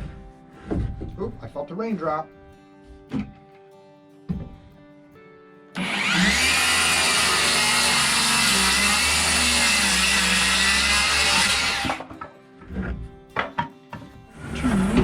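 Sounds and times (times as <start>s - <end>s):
power saw cutting wood: 5.8s - 12.3s, 14.3s - 15.0s.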